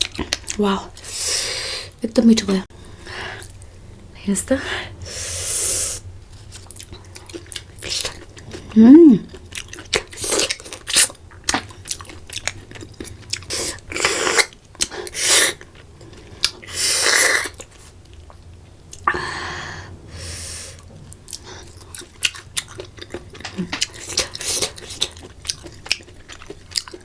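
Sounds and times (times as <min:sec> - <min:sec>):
person chewing with wet smacks: 0:00.0 - 0:01.1, 0:06.4 - 0:19.2, 0:20.8 - 0:27.0.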